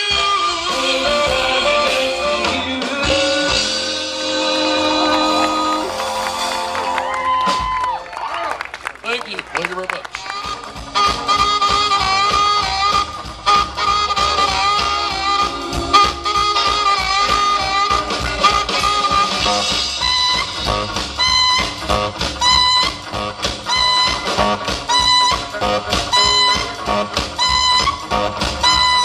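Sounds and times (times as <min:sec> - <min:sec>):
rock band playing instrumental: 0:00.0 - 0:08.1, 0:10.1 - 0:29.0.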